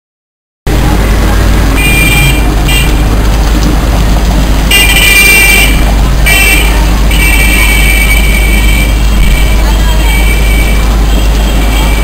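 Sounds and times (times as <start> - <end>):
heavy rain: 0.7 - 12.0
street traffic: 0.7 - 12.0
vehicle horn toots: 1.8 - 3.0, 4.7 - 12.0.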